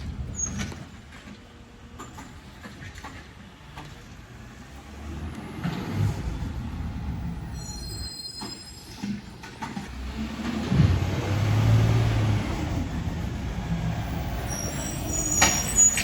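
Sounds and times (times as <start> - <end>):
garbage truck rumbling: 0.0 - 16.0
high-pitched squeal: 7.4 - 9.0, 14.0 - 16.0.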